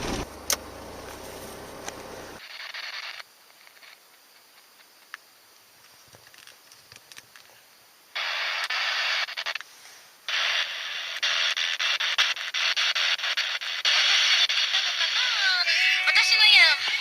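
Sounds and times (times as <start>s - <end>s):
radio static hiss: 0.0s - 5.1s, 8.1s - 17.0s
crackling rapid clicks: 8.2s - 9.7s, 10.3s - 15.5s.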